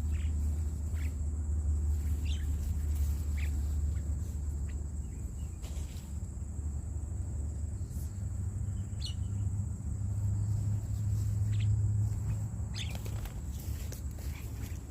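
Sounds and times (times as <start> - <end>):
bird chirps: 0.0 - 5.9, 8.6 - 9.6, 11.2 - 13.4
high-pitched insect whine: 0.0 - 13.4
steady low rumble: 0.0 - 14.9.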